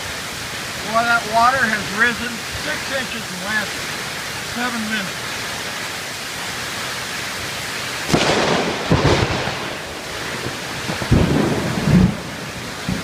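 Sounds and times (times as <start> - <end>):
heavy rain: 0.0 - 13.0
thunderclap cracking and rumbling: 8.1 - 13.0.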